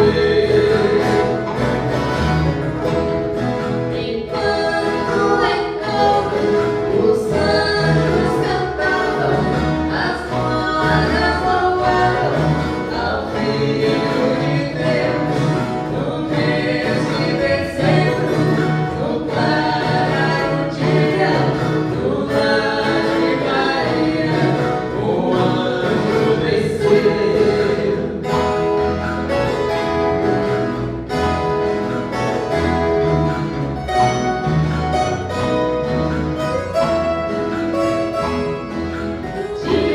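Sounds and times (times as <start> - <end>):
group of voices singing: 0.0 - 29.4, 39.1 - 39.9
plucked string ensemble: 0.0 - 39.9.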